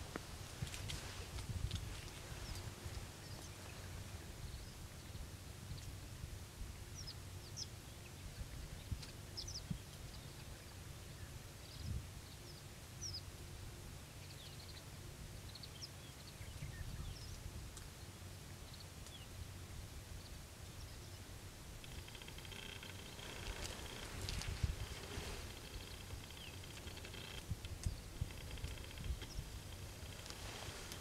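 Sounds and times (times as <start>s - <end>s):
small birds chirping: 0.6s - 6.0s, 6.9s - 13.3s, 20.2s - 31.0s
steady low rumble: 19.4s - 31.0s.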